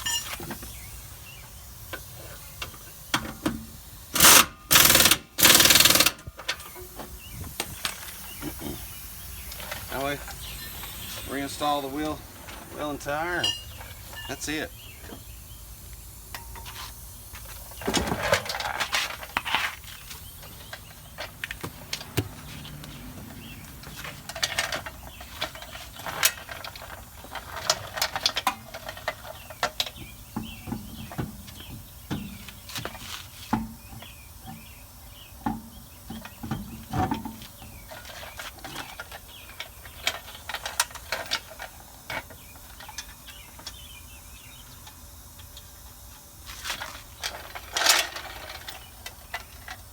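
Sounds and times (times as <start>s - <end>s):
car wheel metallic clanks: 13.4s - 14.4s.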